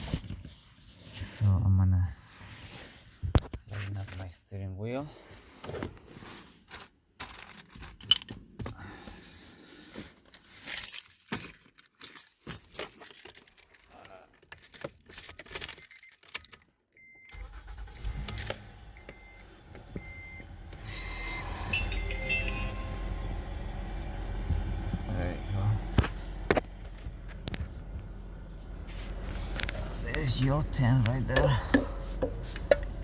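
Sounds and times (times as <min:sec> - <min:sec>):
keys jangling: 0:10.7 - 0:16.7, 0:18.2 - 0:18.8
car beeping short tones: 0:17.0 - 0:25.5
low steady hum: 0:18.0 - 0:33.0.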